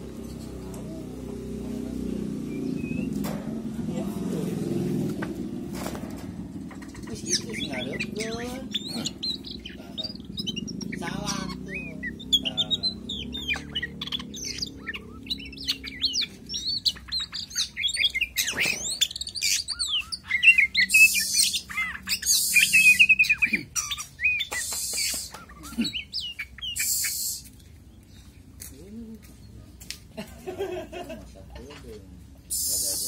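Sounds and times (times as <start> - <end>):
bird singing whistles and chirps: 2.4 - 3.2, 7.2 - 27.6
bird harsh hissing bursts: 20.9 - 23.0, 24.6 - 25.4, 26.8 - 27.5, 32.5 - 33.0.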